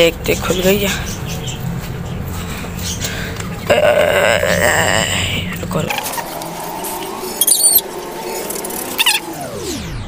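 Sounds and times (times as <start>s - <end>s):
high-pitched bird chirps: 7.4s - 7.8s, 8.9s - 9.3s.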